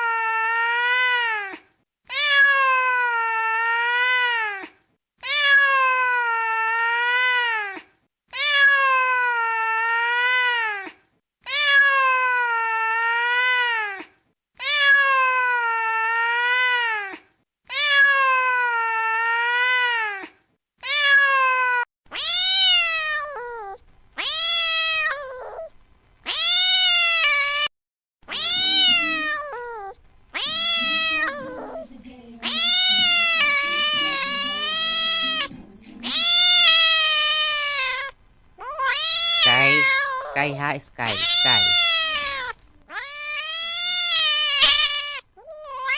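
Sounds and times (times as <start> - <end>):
cat meowing: 0.0 - 25.7, 26.3 - 31.8, 32.4 - 45.9.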